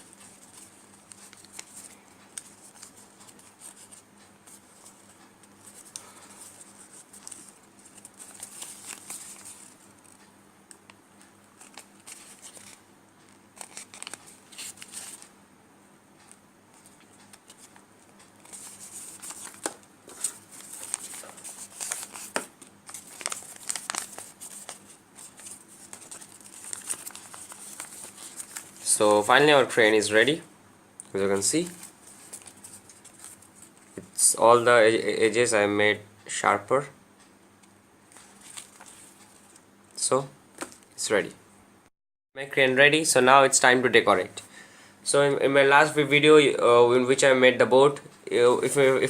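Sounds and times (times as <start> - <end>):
paper rustling and crinkling: 0.0 - 10.2, 11.6 - 15.3, 18.4 - 29.6, 31.3 - 34.0, 38.1 - 39.6.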